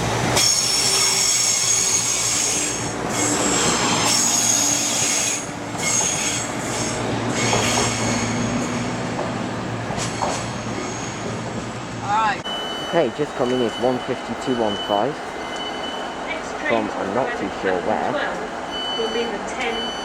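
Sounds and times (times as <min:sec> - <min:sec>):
train running noise: 0:00.0 - 0:20.0
train wheels squealing: 0:00.4 - 0:08.9, 0:10.0 - 0:11.3, 0:12.5 - 0:16.2.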